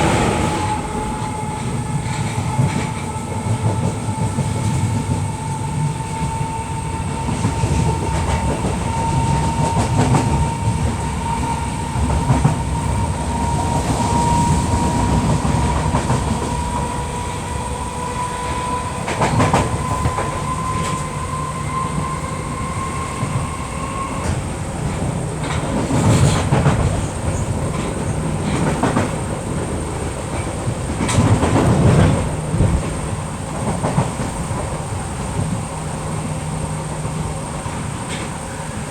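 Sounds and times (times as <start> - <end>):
train motor whine: 0.0 - 29.2
train running rumble: 0.0 - 38.9
wheels clacking over rail joints: 24.2 - 36.4.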